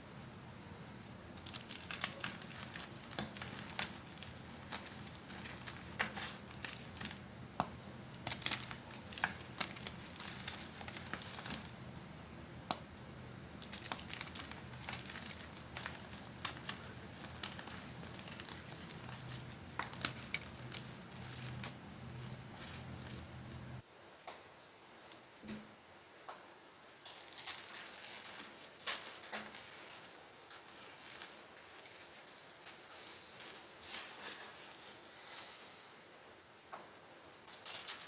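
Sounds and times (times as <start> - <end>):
low steady hum: 0.0 - 37.9
chalk being crushed: 1.4 - 12.0, 13.6 - 23.8.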